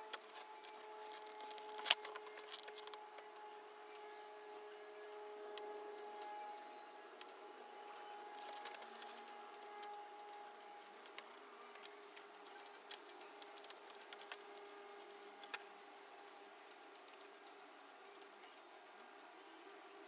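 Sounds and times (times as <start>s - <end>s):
small clicks and ticks: 0.0s - 3.4s, 8.4s - 19.8s.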